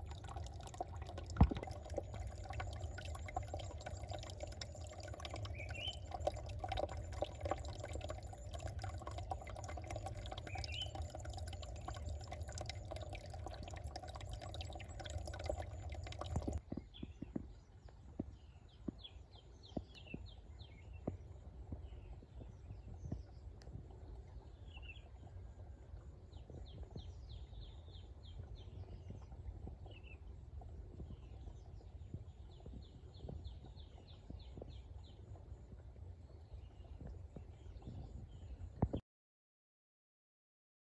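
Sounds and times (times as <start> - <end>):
stream flowing: 0.0 - 16.6
birds chirping: 0.2 - 16.6.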